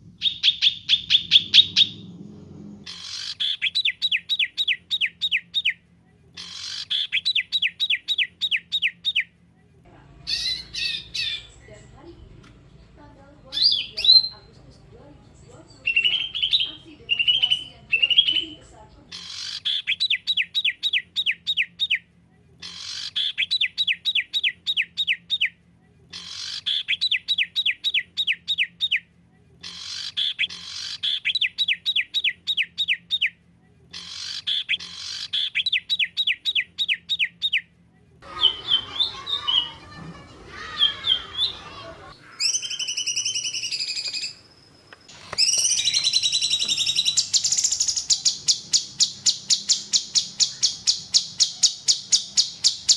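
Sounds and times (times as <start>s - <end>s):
songbird trilling: 0.2s - 2.0s, 10.0s - 22.0s, 38.2s - 44.4s, 45.3s - 52.9s.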